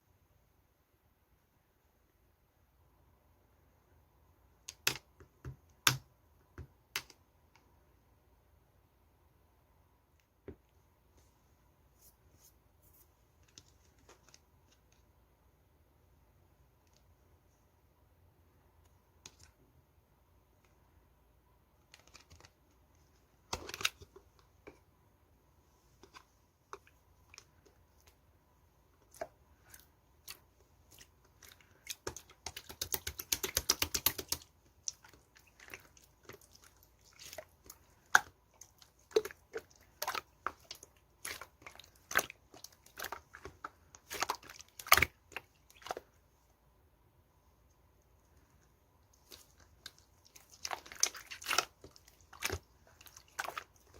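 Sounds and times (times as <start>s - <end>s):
slime squishing with wet clicks: 4.5s - 7.8s, 18.8s - 19.8s, 23.4s - 24.9s, 26.0s - 46.3s, 47.6s - 53.9s
rapid crackling of slime: 25.9s - 46.3s, 49.1s - 53.9s.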